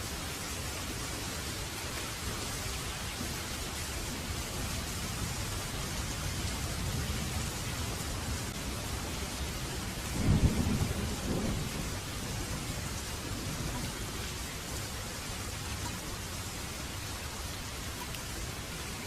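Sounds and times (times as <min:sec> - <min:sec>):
heavy rain falling: 0:00.0 - 0:19.0
thunder clap rumbling: 0:09.8 - 0:14.0.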